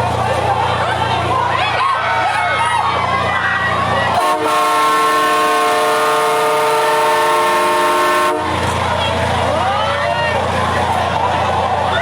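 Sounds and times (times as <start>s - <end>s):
multi-tone horn blast: 4.2s - 8.7s.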